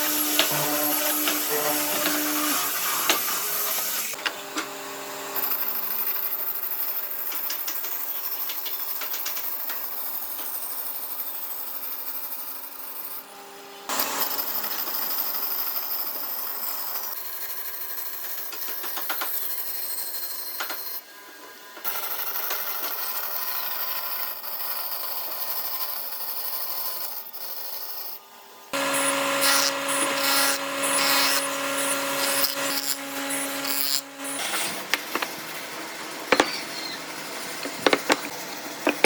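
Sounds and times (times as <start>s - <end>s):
small power tool running: 0.0s - 8.2s, 28.7s - 39.0s.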